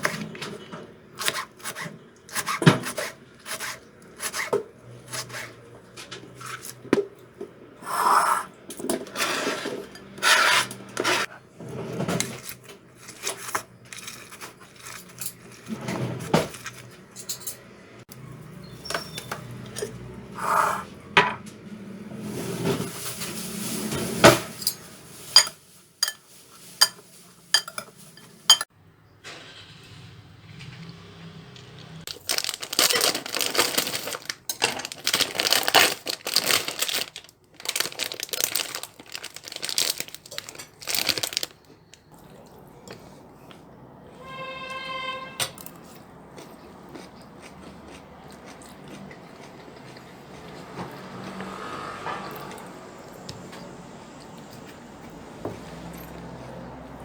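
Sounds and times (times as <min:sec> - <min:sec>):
dishes and utensils clinking: 0:24.2 - 0:28.7.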